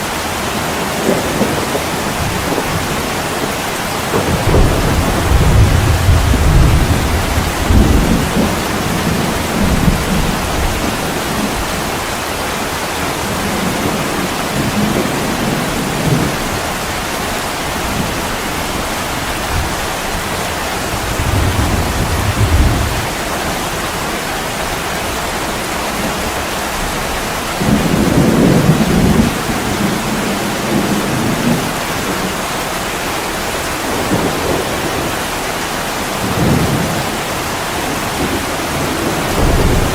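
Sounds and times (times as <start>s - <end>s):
heavy rain on a window: 0.0s - 39.9s.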